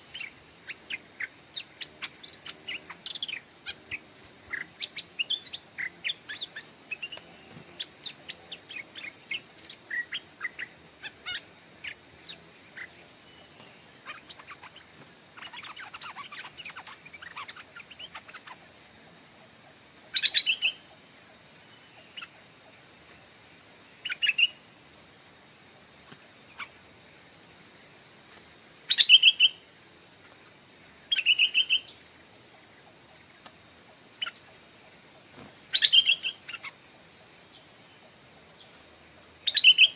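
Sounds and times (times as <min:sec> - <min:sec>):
bird chirps: 0:00.0 - 0:19.0, 0:20.1 - 0:21.0, 0:24.0 - 0:24.6, 0:28.9 - 0:29.6, 0:31.1 - 0:32.0, 0:35.7 - 0:36.8, 0:39.4 - 0:39.9
bird song phrases: 0:00.0 - 0:24.6, 0:28.9 - 0:29.7, 0:30.8 - 0:33.4, 0:34.2 - 0:39.9.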